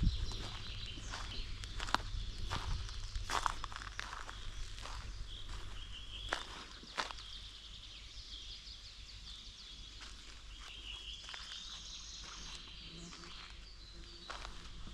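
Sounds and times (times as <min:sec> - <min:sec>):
low rumble: 0:00.0 - 0:06.6
high-pitched chirping calls: 0:00.0 - 0:07.6.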